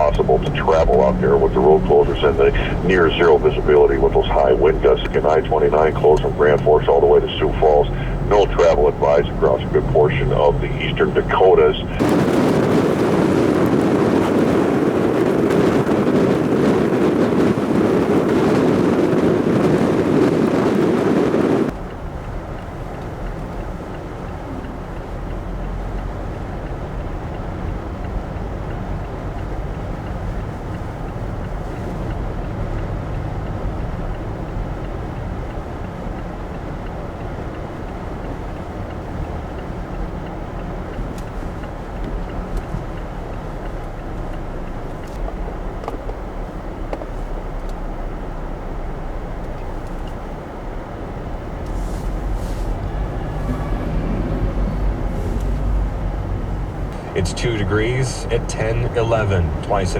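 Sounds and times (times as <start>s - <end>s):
wind blowing across microphone: 0.0s - 37.3s, 50.0s - 59.9s
steady low rumble: 0.0s - 59.9s.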